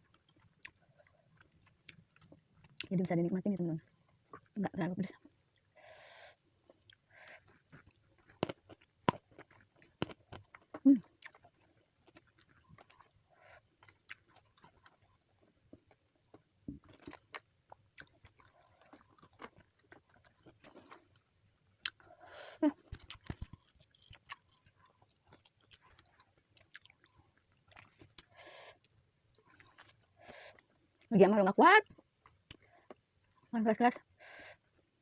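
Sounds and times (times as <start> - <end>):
person chewing food: 0.0 - 3.1, 4.0 - 4.6, 6.6 - 31.1, 31.9 - 33.5
mouth clicks and crunches: 22.8 - 28.3.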